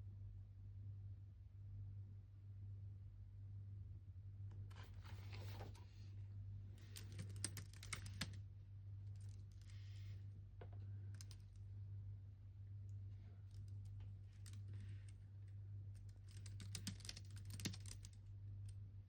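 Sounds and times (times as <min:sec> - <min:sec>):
steady low hum: 0:00.0 - 0:19.0
typing on computer keyboard: 0:06.8 - 0:08.4, 0:16.1 - 0:18.2.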